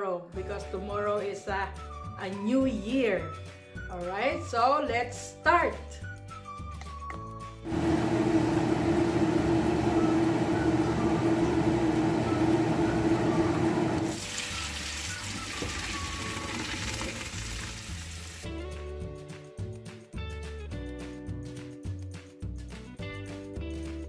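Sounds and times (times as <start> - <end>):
water running from tap: 10.2 - 18.5.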